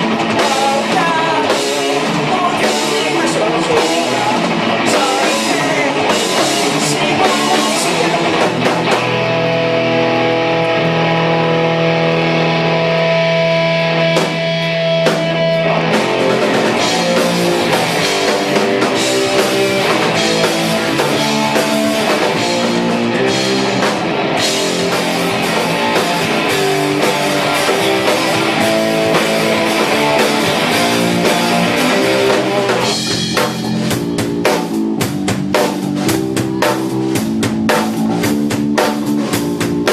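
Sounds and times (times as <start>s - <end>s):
punk rock band playing: 0.0s - 39.9s
held guitar notes ringing: 6.2s - 34.2s.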